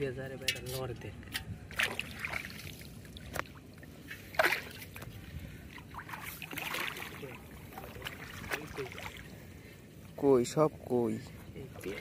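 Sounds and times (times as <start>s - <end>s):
water sloshing and dripping: 0.5s - 10.2s, 11.6s - 12.0s
short sharp splashes: 1.7s - 3.6s, 4.3s - 5.0s, 5.9s - 9.3s.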